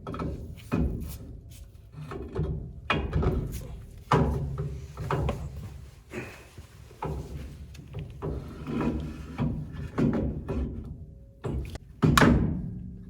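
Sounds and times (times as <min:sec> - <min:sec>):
scraping and rubbing: 0:03.5 - 0:10.5.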